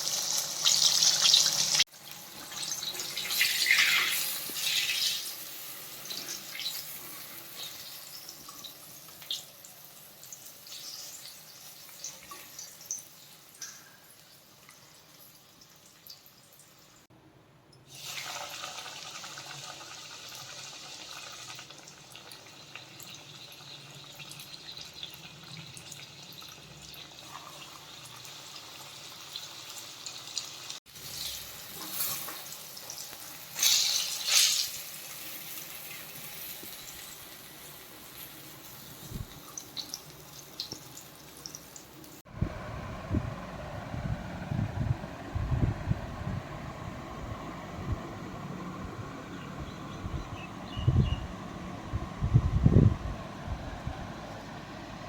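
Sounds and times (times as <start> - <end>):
oil sizzling and crackling: 0.0 - 17.1, 17.9 - 42.3.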